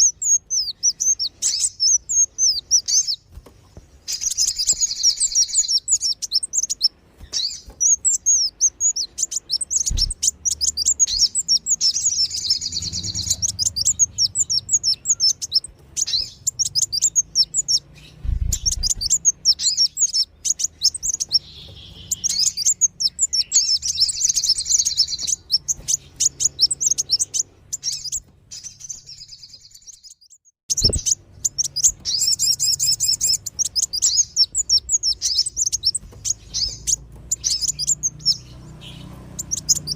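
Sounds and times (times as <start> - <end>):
sunbirds twittering: 0.0 - 39.9
low thumps: 18.2 - 19.2.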